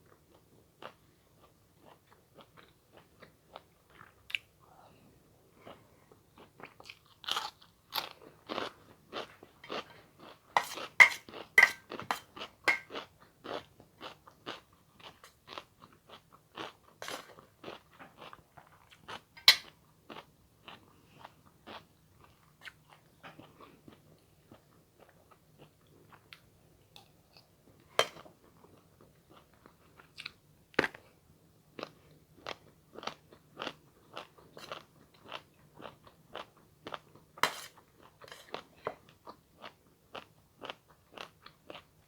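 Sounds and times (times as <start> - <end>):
person chewing crunchy food: 6.4 - 26.4, 31.8 - 41.9.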